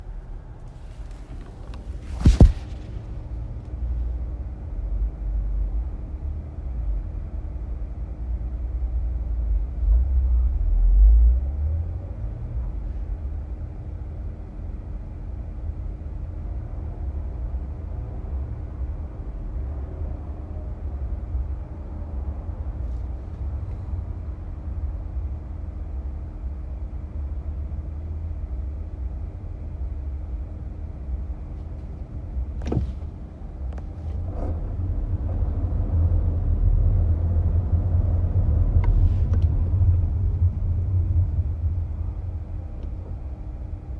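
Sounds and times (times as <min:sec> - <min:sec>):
car cabin rumble: 0:00.0 - 0:04.8, 0:29.8 - 0:43.9
faint steady hum: 0:00.0 - 0:43.9
sharp knock: 0:02.1 - 0:02.9.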